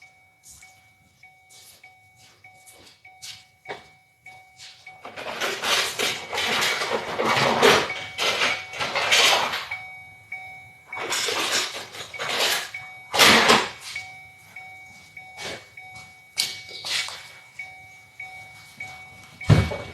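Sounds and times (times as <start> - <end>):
faint short beeps: 12.0 - 19.9.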